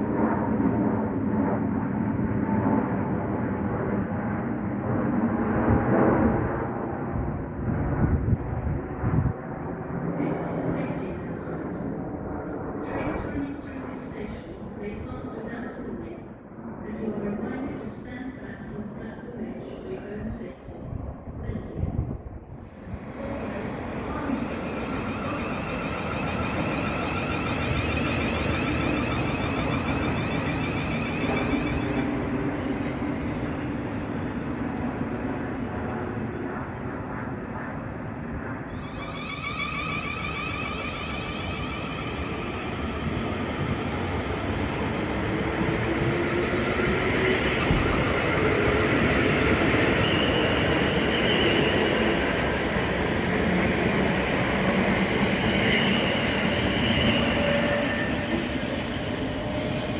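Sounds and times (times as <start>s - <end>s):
train rumbling: 0.0s - 1.3s, 17.4s - 59.9s
faint whines: 22.5s - 45.7s.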